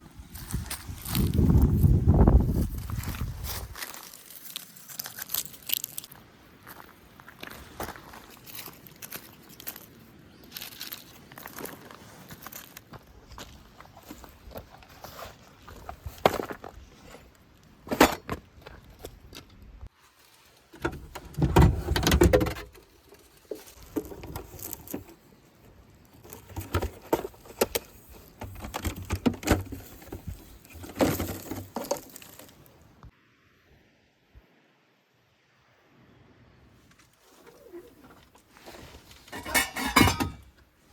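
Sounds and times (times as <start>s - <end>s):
gear handling noise: 37.0s - 40.6s.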